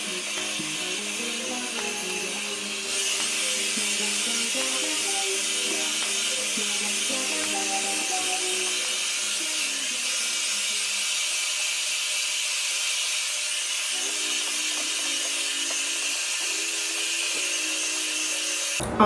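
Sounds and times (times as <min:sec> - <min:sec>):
hair dryer blowing: 0:00.0 - 0:19.0.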